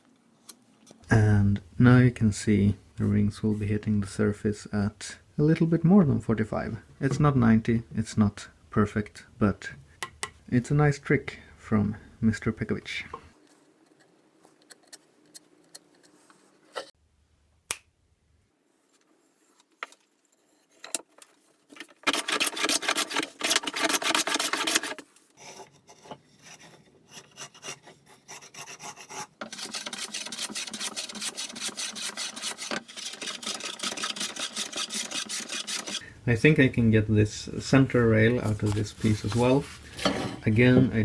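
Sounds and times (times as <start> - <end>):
handsaw cutting wooden board: 21.9 - 36.0.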